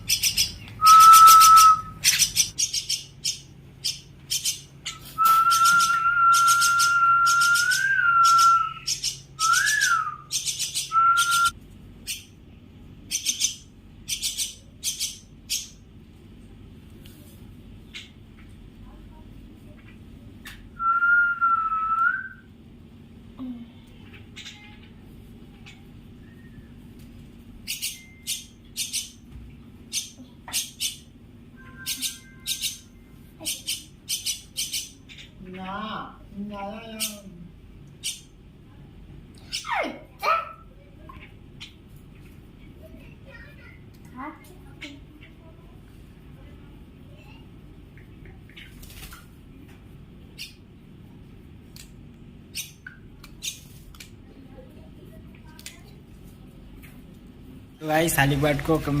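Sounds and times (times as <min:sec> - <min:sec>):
low background noise: 0:00.0 - 0:59.0
steady low hum: 0:00.0 - 0:59.0
whistled bird notes: 0:00.1 - 0:03.4, 0:04.3 - 0:11.5, 0:26.2 - 0:26.8, 0:31.6 - 0:33.1
bird squawking: 0:31.6 - 0:35.4.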